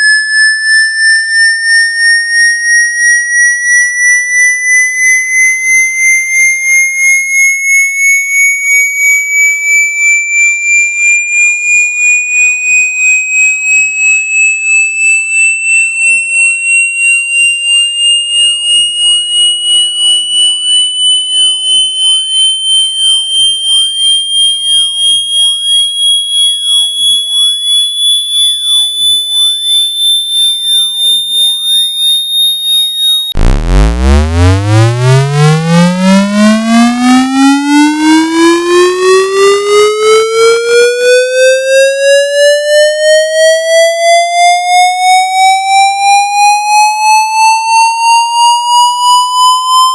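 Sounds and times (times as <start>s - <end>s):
pulsing high electronic tone: 0.0s - 16.1s, 17.3s - 47.3s
buzzy low pulsing tone: 33.4s - 36.0s.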